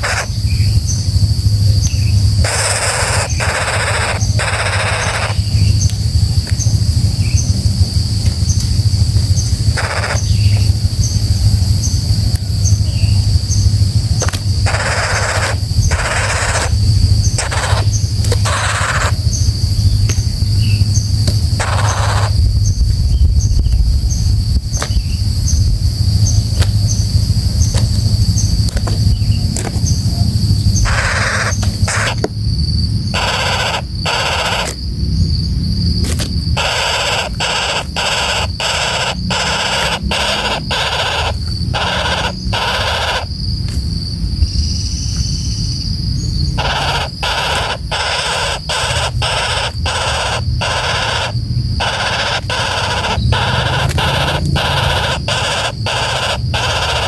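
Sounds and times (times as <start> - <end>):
woodpecker rasping calls: 0.0 - 7.8, 8.4 - 25.2, 26.1 - 43.7, 44.7 - 57.0
high insect drone: 0.0 - 57.0
low rumble: 4.1 - 47.7.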